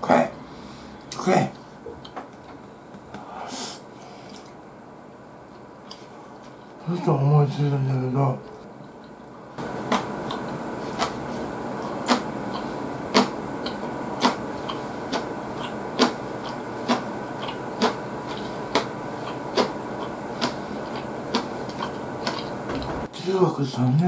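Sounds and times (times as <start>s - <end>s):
steady hiss: 3.1s - 4.6s
person chewing food: 5.5s - 6.8s, 8.4s - 22.9s.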